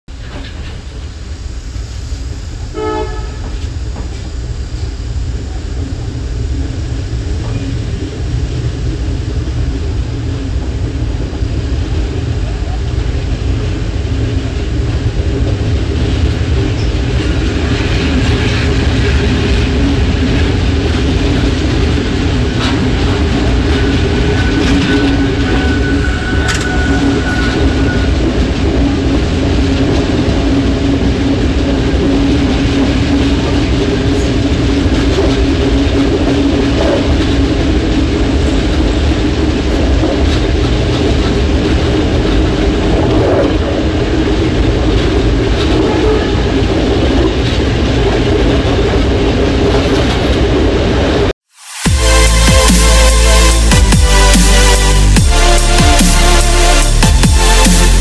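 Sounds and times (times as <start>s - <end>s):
clicks of train wheels: 0.1s - 1.1s, 3.2s - 4.9s, 14.4s - 30.8s
train wheels rumbling on rail: 0.1s - 58.0s.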